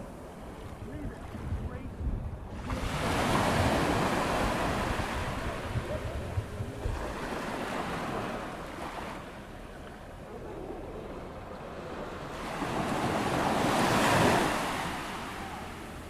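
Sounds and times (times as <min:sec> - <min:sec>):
wind buffeting microphone: 0:00.0 - 0:11.5
ocean waves breaking on beach: 0:00.0 - 0:16.0.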